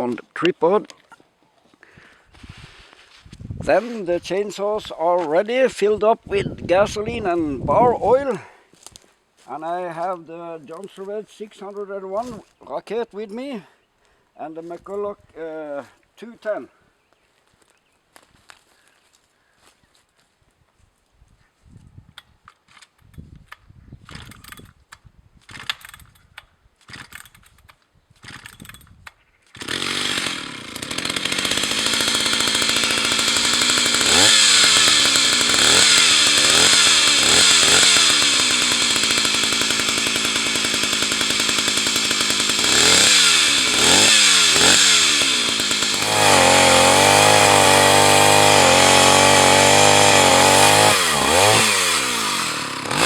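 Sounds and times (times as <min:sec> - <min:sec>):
chainsaw engine revving: 0:25.5 - 0:26.0, 0:28.2 - 0:28.8, 0:29.6 - 0:53.0.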